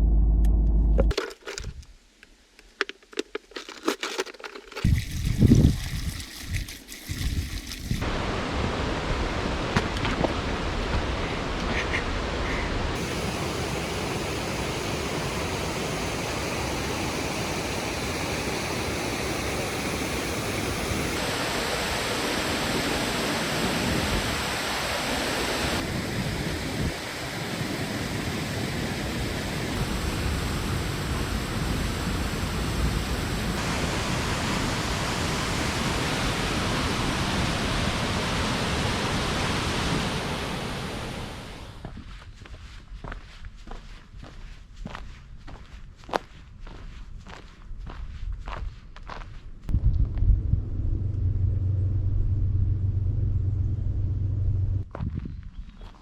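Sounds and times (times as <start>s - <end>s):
waterfall rushing: 12.9s - 26.0s, 33.5s - 41.7s.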